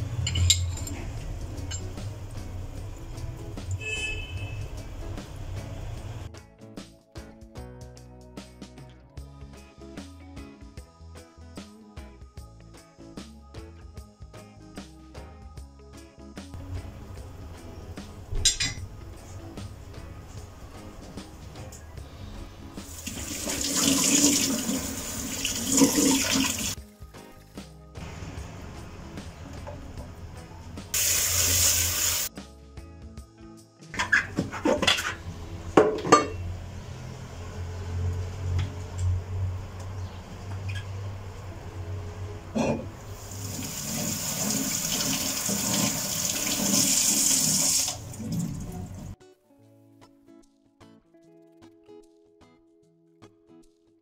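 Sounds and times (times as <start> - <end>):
tap water running into sink: 22.8 - 26.8, 30.9 - 32.3, 43.1 - 49.2.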